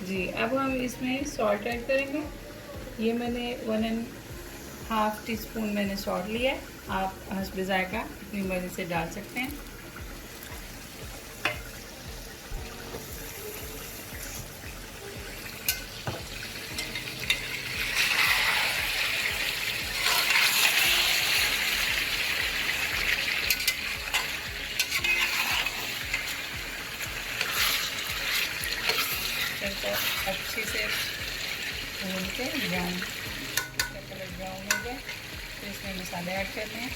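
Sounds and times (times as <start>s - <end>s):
chicken and onions sizzling: 0.0s - 36.9s
spoon clicking against pot: 33.5s - 34.0s, 34.7s - 34.9s.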